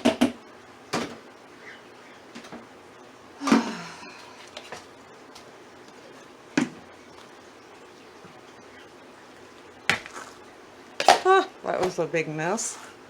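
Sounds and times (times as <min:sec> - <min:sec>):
potting soil being dumped: 0:10.0 - 0:10.4.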